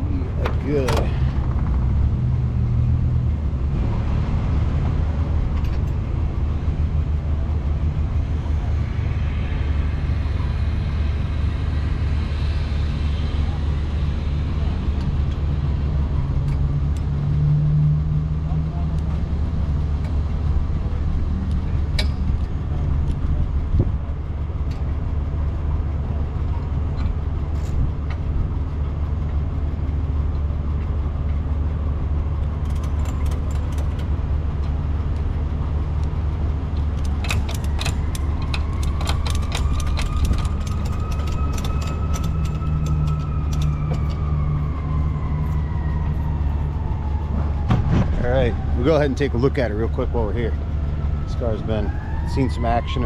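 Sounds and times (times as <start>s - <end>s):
truck engine drone: 0.0s - 53.0s
rattling clicks: 32.6s - 35.3s, 36.7s - 44.3s
rising and falling whine: 34.6s - 53.0s.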